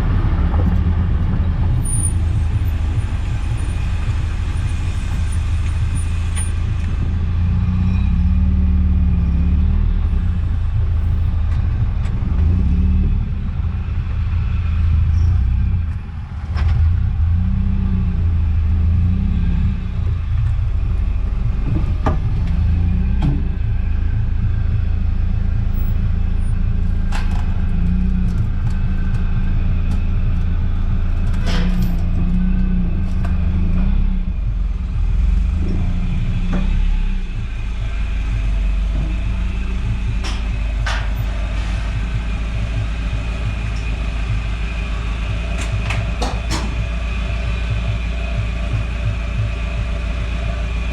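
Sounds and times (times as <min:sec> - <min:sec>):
car engine and road rumble: 0:00.0 - 0:50.9
suspension knocks and clicks: 0:19.0 - 0:50.9.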